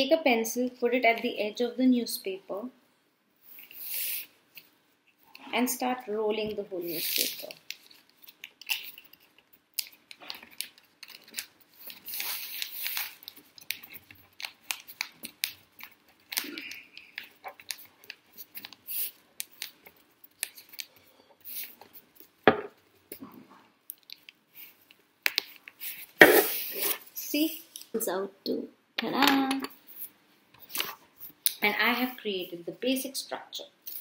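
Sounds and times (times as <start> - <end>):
paper crinkling and rustling: 7.0 - 22.3.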